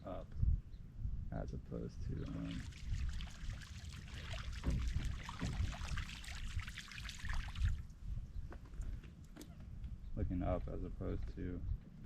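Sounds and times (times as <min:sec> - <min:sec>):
water trickling and splashing: 0:02.1 - 0:08.0.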